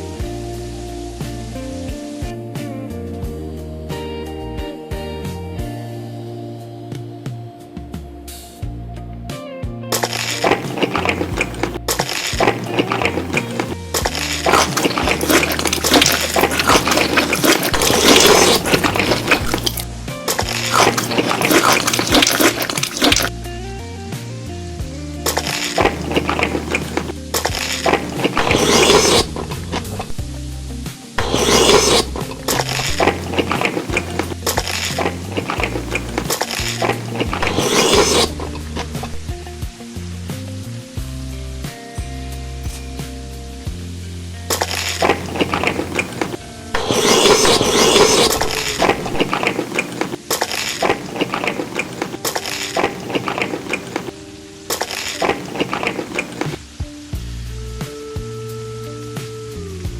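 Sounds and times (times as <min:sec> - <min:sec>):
crunchy eating sounds: 0:10.0 - 0:23.4, 0:25.2 - 0:39.5, 0:44.5 - 0:56.7.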